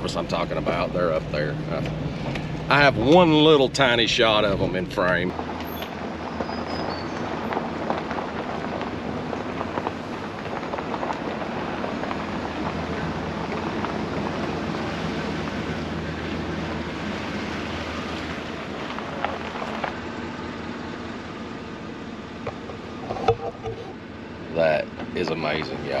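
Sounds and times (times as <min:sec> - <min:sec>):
low engine hum: 0:00.0 - 0:26.0
tyres on dirt and rock: 0:00.2 - 0:16.0, 0:16.6 - 0:20.1.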